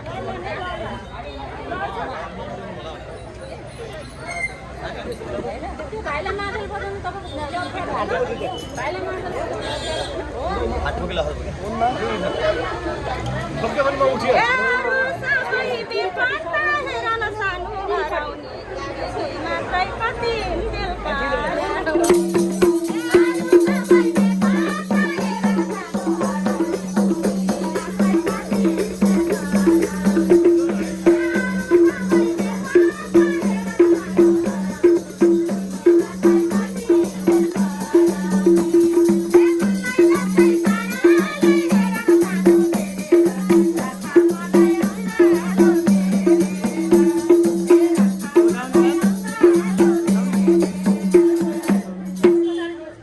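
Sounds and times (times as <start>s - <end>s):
hand drum beat: 22.0s - 52.6s
shaker rattle: 22.0s - 52.6s.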